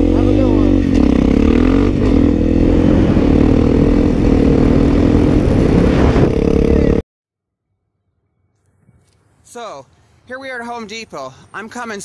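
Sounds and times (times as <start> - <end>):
vehicle engine running: 0.0 - 5.7
heavy low rumble: 0.0 - 7.0.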